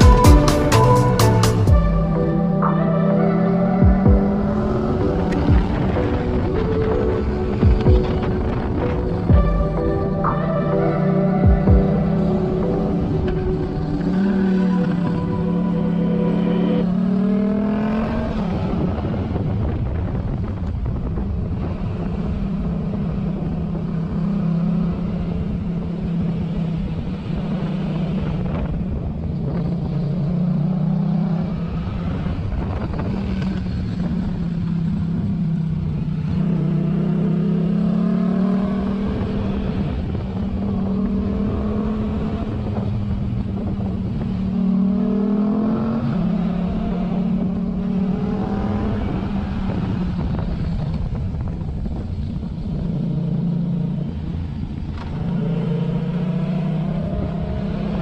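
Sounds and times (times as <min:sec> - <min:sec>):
motorcycle engine accelerating: 0:00.0 - 0:58.0
wind noise: 0:03.8 - 0:15.5, 0:17.8 - 0:30.4, 0:31.2 - 0:58.0.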